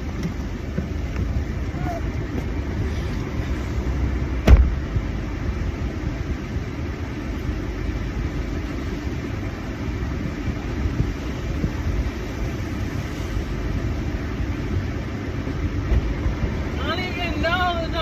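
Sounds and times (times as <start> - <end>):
car interior rumble: 0.0 - 18.0
sharp thump: 4.4 - 4.8.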